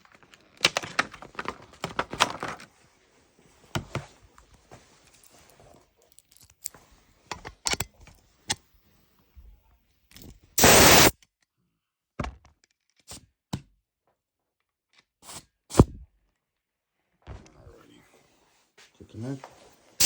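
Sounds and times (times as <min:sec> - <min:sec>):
clicks and knocks of small parts: 0:00.0 - 0:02.7, 0:06.0 - 0:08.6, 0:10.1 - 0:10.4
hissing burst: 0:10.6 - 0:11.1.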